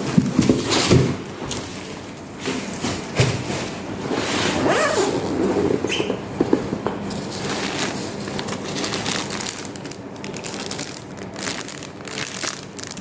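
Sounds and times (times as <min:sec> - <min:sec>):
plastic packaging crinkling: 0:04.4 - 0:13.0.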